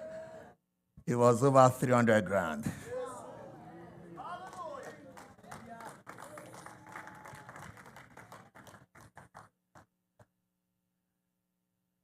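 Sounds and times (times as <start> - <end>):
congregation clapping: 4.2 - 9.9.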